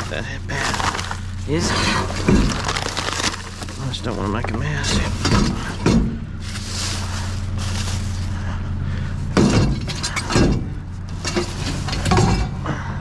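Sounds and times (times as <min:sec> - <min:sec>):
glass and junk clattering: 0:00.0 - 0:06.2, 0:09.4 - 0:12.6.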